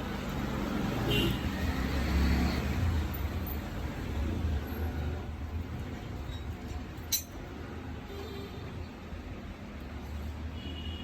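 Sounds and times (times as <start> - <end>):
tool clinking against metal: 7.1 - 7.4.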